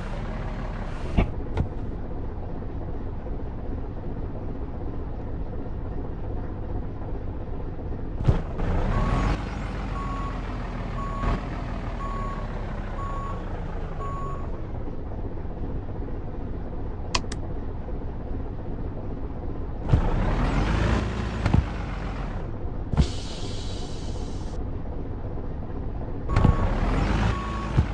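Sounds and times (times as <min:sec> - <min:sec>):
truck engine rumbling: 0:00.0 - 0:27.9
engine revving rush: 0:08.2 - 0:12.0, 0:19.8 - 0:23.3, 0:26.3 - 0:27.9
short beeps: 0:26.3 - 0:27.9.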